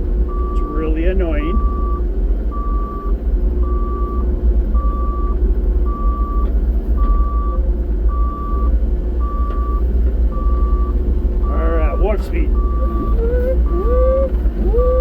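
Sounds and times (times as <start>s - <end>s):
excavator engine droning: 0.0s - 15.0s
high-pitched alarm beeping: 9.2s - 15.0s.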